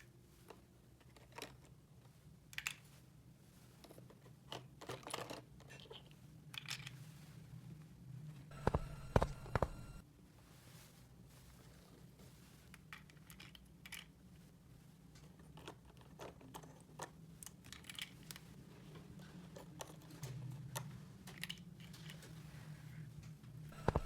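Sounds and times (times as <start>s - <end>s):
low steady hum: 7.5s - 12.6s, 18.4s - 24.0s
plastic toy pieces clicking: 15.6s - 18.4s.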